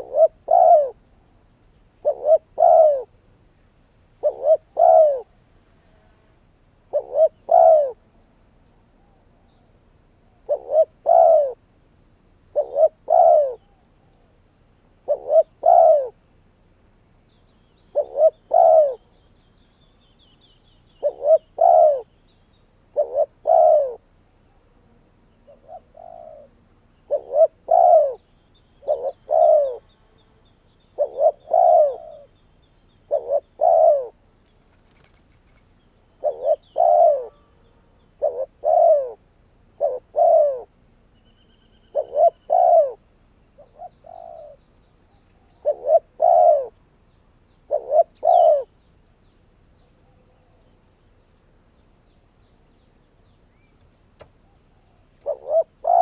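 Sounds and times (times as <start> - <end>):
dove cooing: 0.0 - 1.3, 2.0 - 3.2, 4.2 - 5.4, 6.9 - 8.0, 10.3 - 11.7, 12.5 - 14.3, 15.0 - 16.2, 17.8 - 19.2, 21.0 - 22.2, 22.8 - 24.7, 25.3 - 29.9, 30.8 - 34.2, 34.8 - 40.7, 41.8 - 44.6, 45.2 - 46.8, 47.6 - 48.8, 54.3 - 56.0
faint high bird chirps: 17.2 - 24.6, 25.3 - 39.2, 39.8 - 43.0, 43.6 - 56.0.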